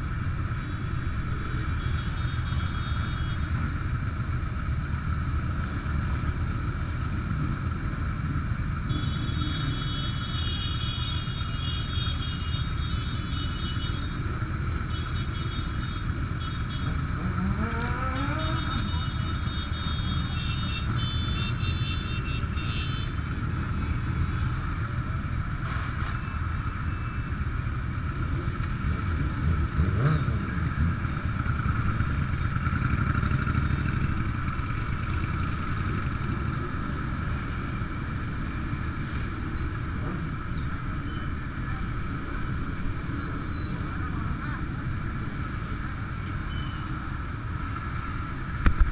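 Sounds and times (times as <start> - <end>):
motorcycle engines running: 12.8 - 25.6, 26.4 - 48.9.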